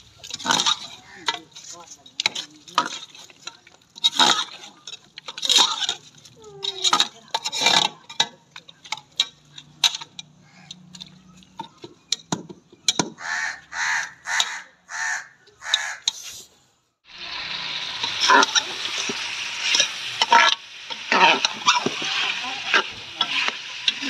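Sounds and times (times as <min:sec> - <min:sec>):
metal ladle scraping pot: 0:00.0 - 0:10.0, 0:17.9 - 0:24.0
meat sizzling: 0:17.1 - 0:24.0.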